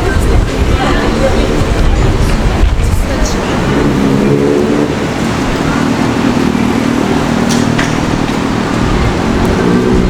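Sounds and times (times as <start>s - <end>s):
road traffic passing: 0.0s - 10.0s.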